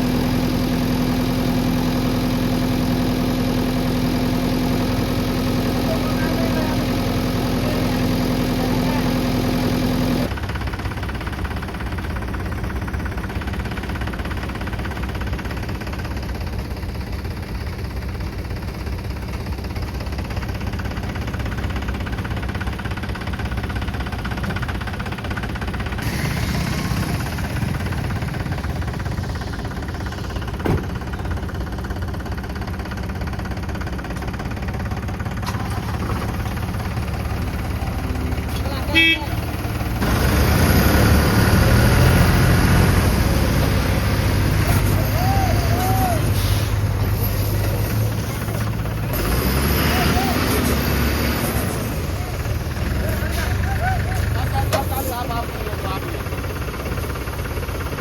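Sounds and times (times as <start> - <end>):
heavy machinery diesel engine: 0.0 - 58.0
sharp knock: 30.6 - 30.9.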